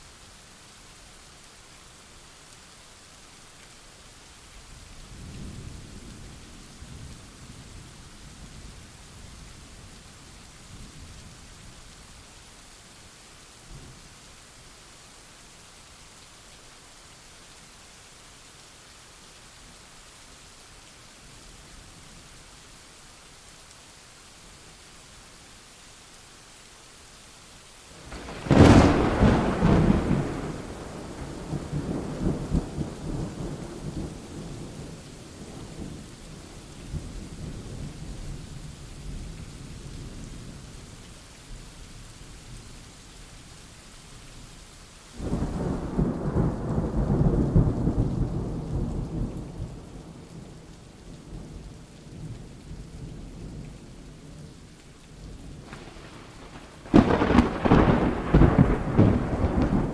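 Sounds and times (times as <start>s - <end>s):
steady rain: 0.0s - 59.9s
thunder rumbling: 28.1s - 35.9s, 55.6s - 59.9s
sharp thunderclap: 28.2s - 34.0s, 55.7s - 59.9s.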